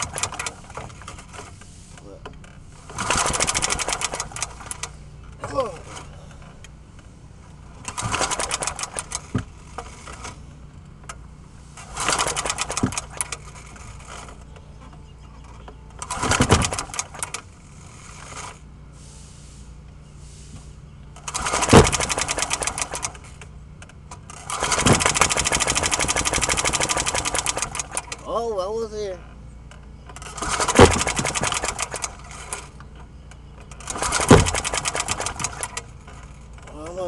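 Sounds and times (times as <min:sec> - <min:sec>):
lawnmower starter cord cranking: 0:00.0 - 0:01.6, 0:02.4 - 0:06.6, 0:07.8 - 0:10.4, 0:11.1 - 0:14.5, 0:15.4 - 0:18.7, 0:21.2 - 0:28.4, 0:30.1 - 0:32.9, 0:33.5 - 0:37.0.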